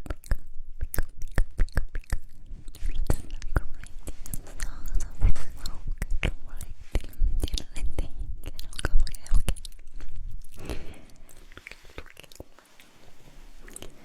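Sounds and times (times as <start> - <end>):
wet mouth clicks and smacks: 0.0 - 4.8, 5.6 - 12.9
breathy noise: 10.5 - 14.0.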